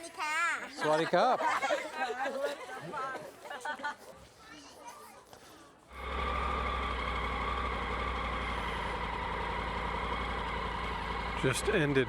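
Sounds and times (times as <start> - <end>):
motorcycle engine idling: 6.0 - 12.0.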